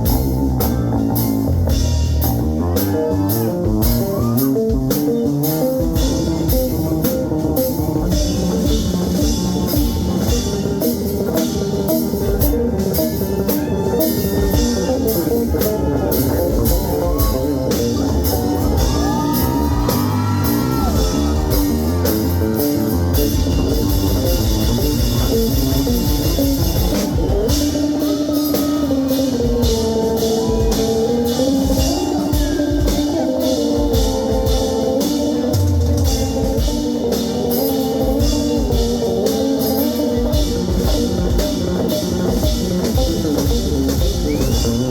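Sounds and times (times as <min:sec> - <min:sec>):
rock band playing: 0:00.0 - 0:44.9
sliding electric guitar lines: 0:00.0 - 0:44.9.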